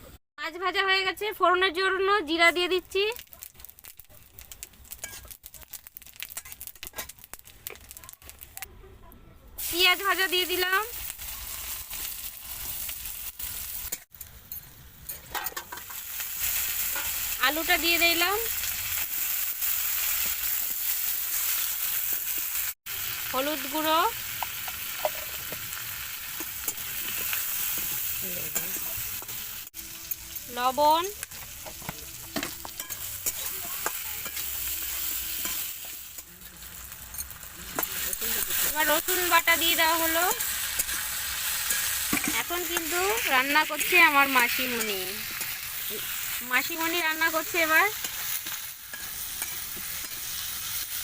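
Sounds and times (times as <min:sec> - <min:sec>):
onions sizzling in hot oil: 0:00.0 - 0:08.7, 0:09.6 - 0:51.0
spoon clicking and scraping pan: 0:04.9 - 0:05.4, 0:31.2 - 0:36.3, 0:40.6 - 0:45.6, 0:47.9 - 0:50.9.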